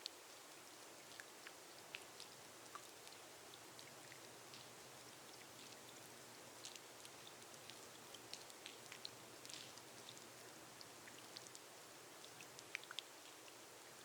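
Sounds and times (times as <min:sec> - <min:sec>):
rain hissing on a glass roof: 0:00.0 - 0:14.0.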